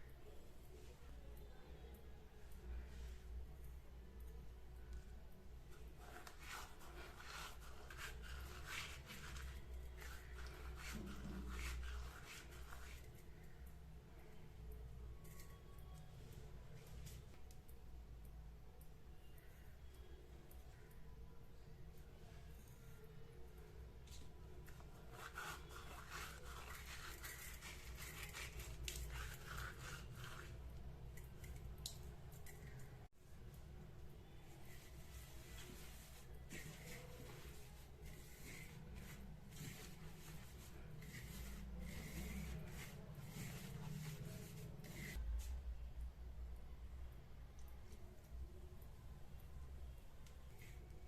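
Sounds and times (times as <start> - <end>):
rubbing and scraping strokes: 5.7 - 13.5, 24.1 - 31.6, 34.5 - 45.2.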